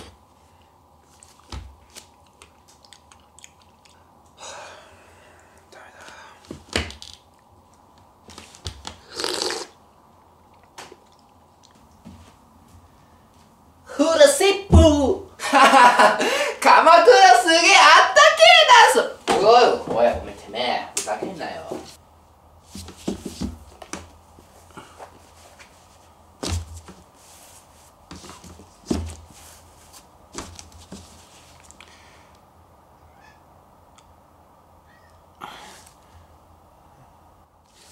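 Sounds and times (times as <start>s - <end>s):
dull handling knocks and thumps: 22.7s - 24.1s, 28.1s - 29.3s.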